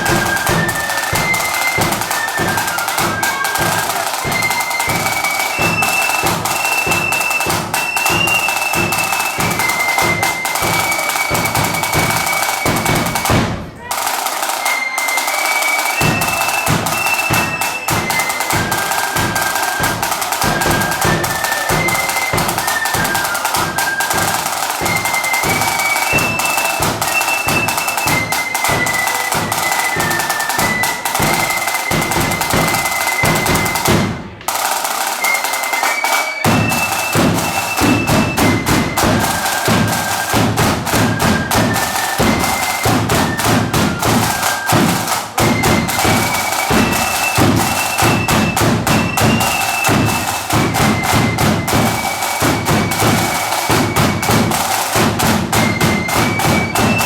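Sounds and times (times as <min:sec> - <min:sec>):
high flute melody: 0:00.0 - 0:57.0
snare drum: 0:00.0 - 0:57.0.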